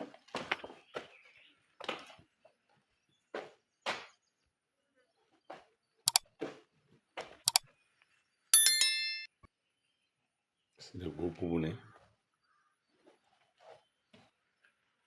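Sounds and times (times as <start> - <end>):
bright metallic ring: 8.6 - 9.3.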